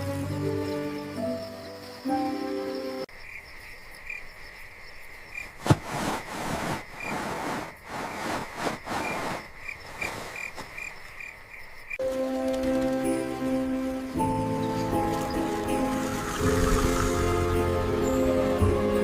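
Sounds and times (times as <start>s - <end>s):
frogs croaking: 0.1s - 12.0s.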